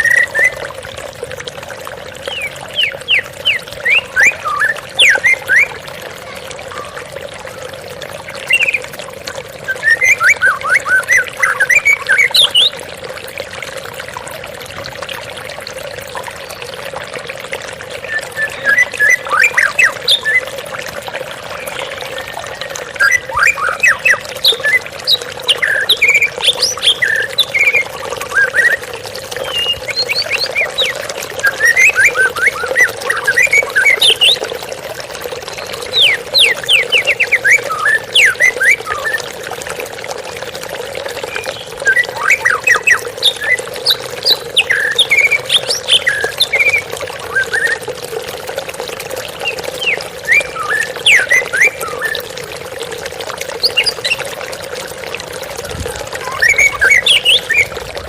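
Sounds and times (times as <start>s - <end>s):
bird singing whistled phrases: 0.0s - 0.6s, 2.2s - 5.8s, 8.4s - 8.9s, 9.6s - 12.8s, 17.9s - 20.6s, 21.5s - 34.6s, 35.5s - 39.3s, 41.2s - 47.8s, 49.4s - 52.4s, 53.6s - 54.3s, 56.2s - 57.9s
waterfall rushing: 55.6s - 58.0s.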